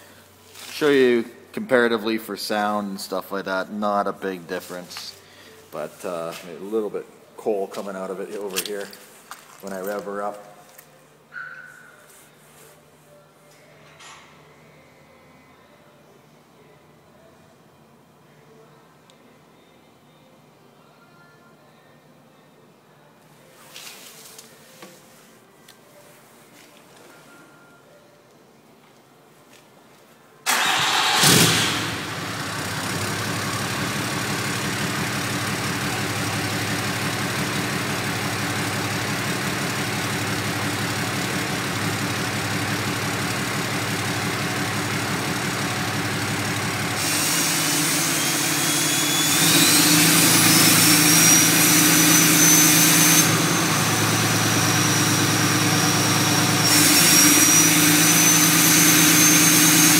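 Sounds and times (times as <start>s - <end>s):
diesel engine idling: 30.5s - 59.9s
turbo whistle rising in pitch: 47.1s - 55.3s, 56.0s - 59.9s.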